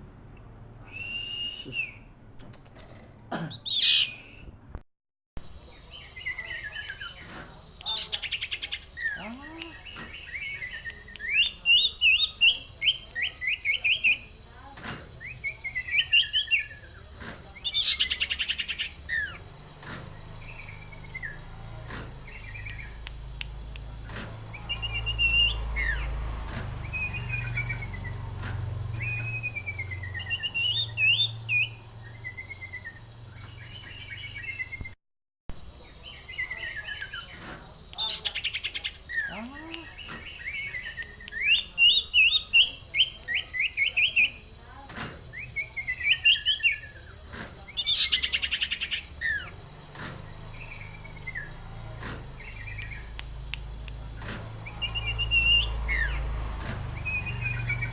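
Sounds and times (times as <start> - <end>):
bird singing whistled phrases: 0.8 - 2.1, 7.8 - 14.3, 28.9 - 34.9, 38.0 - 44.4, 45.3 - 47.0, 54.7 - 56.2, 57.0 - 57.9.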